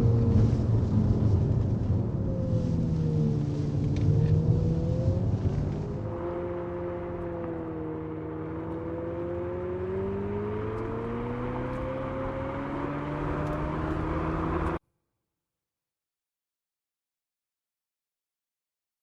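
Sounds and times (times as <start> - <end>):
artificial car engine sound: 0.0 - 14.8.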